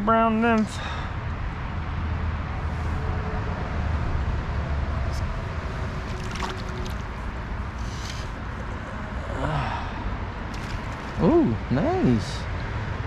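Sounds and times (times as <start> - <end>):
stream water rushing: 5.7 - 8.4, 10.5 - 11.4.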